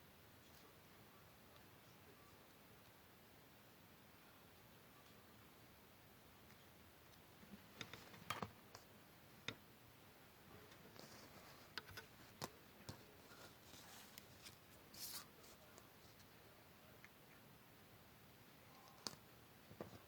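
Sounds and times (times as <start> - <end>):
paper rustling: 13.0 - 16.3.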